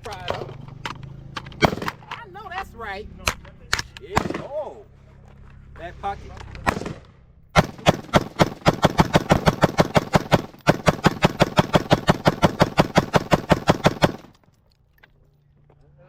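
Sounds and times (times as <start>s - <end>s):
rapid gunshots: 1.6s - 2.2s, 4.1s - 4.6s, 6.6s - 14.4s.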